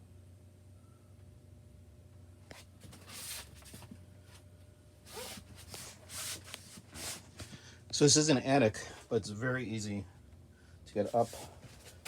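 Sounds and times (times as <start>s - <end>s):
steady low hum: 0.0s - 12.0s
faint scuffing and rustling: 11.0s - 12.0s.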